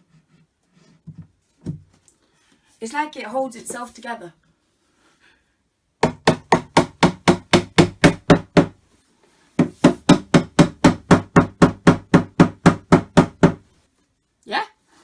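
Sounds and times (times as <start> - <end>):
mallet striking furniture panel: 6.0 - 8.8, 9.6 - 13.7.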